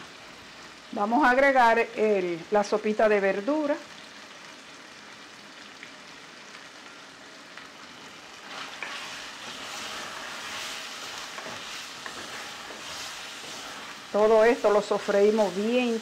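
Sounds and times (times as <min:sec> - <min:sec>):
sausage sizzling in oil: 0:00.0 - 0:16.0
wooden spoon stirring: 0:08.4 - 0:16.0.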